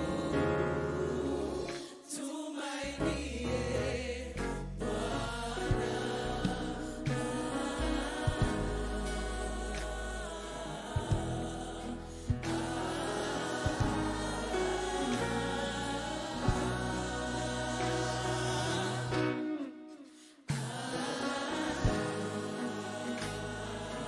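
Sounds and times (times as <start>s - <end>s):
choir singing over a band: 0.0s - 24.0s.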